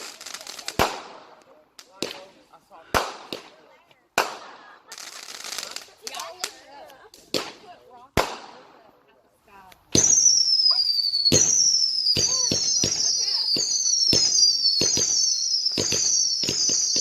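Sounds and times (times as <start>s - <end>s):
firework pops: 0.0s - 8.8s, 9.7s - 17.0s
firework bangs and crackle: 0.0s - 9.0s, 9.9s - 17.0s
whistling fireworks: 9.9s - 17.0s.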